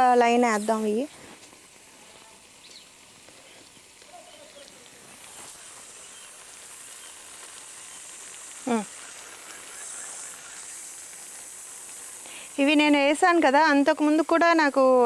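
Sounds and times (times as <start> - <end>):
steady high-pitched hiss: 0.0 - 15.0.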